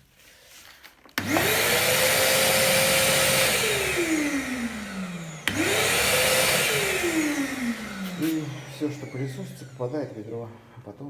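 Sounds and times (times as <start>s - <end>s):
vacuum cleaner motor whining: 1.2s - 11.0s.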